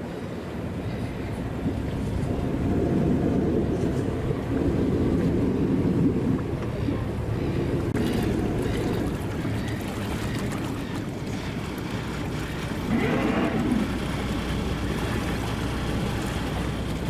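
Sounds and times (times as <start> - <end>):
boat engine running: 0.0 - 17.0
water noise: 0.0 - 17.0
wind: 0.0 - 17.0.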